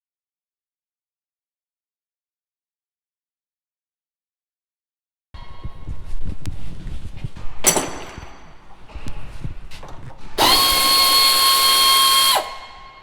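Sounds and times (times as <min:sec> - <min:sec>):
metal parts clicking and knocking: 0:07.6 - 0:08.7
power drill whining: 0:10.4 - 0:13.0.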